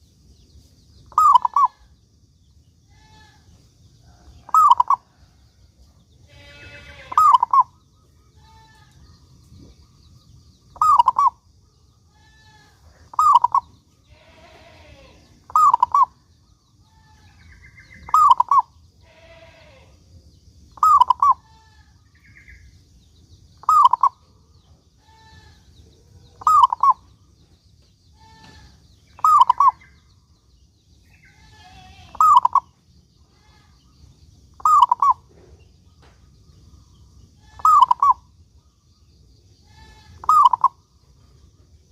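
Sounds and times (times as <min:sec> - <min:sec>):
faint bird chirps: 0:00.0 - 0:41.9
dove cooing: 0:01.1 - 0:01.8, 0:04.4 - 0:05.1, 0:07.1 - 0:07.7, 0:10.8 - 0:11.4, 0:13.1 - 0:13.7, 0:15.5 - 0:16.2, 0:18.0 - 0:18.6, 0:20.8 - 0:21.4, 0:23.6 - 0:24.1, 0:26.4 - 0:27.0, 0:29.2 - 0:29.8, 0:32.1 - 0:32.6, 0:34.6 - 0:35.4, 0:37.5 - 0:38.2, 0:39.8 - 0:40.8.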